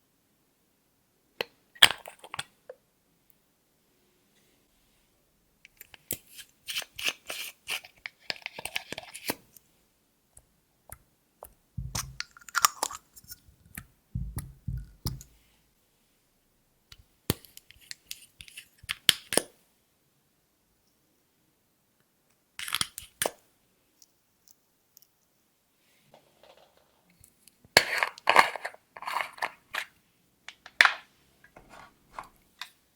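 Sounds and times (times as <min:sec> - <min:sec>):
dull thumps: 0:11.8 - 0:12.2, 0:14.2 - 0:15.2.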